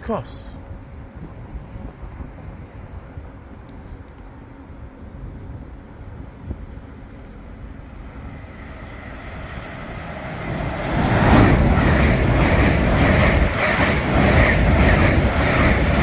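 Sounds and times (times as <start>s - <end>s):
train passing through station: 0.0s - 16.0s
train wheels clattering: 10.6s - 16.0s.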